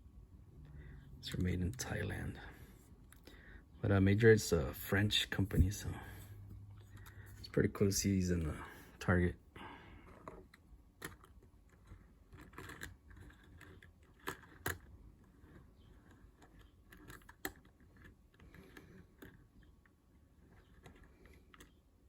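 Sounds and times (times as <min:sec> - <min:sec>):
toy van clicks and taps: 0:11.0 - 0:21.7.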